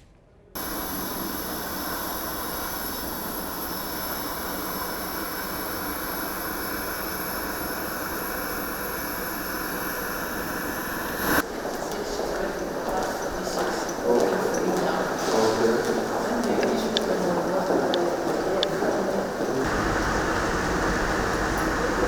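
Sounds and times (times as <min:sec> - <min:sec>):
jet engines running: 0:00.6 - 0:11.4, 0:19.2 - 0:22.0.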